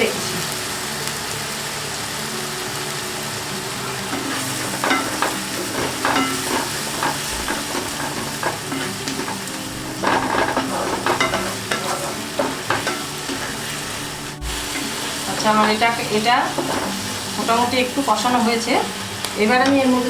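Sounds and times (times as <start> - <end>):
paste sizzling in oil: 0.0 - 20.0
stirring strokes in pan: 4.0 - 20.0.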